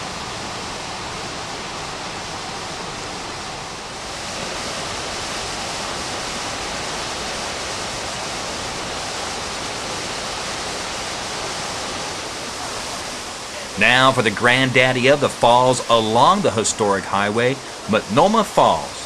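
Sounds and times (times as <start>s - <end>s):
waterfall pouring: 0.0s - 19.0s.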